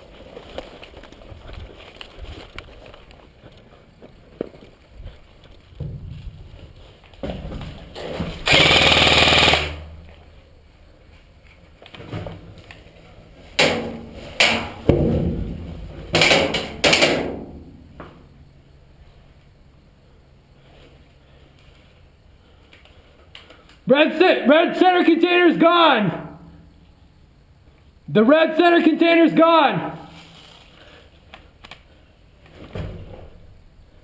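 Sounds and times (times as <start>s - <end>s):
airsoft gun firing bursts: 8.4s - 9.9s.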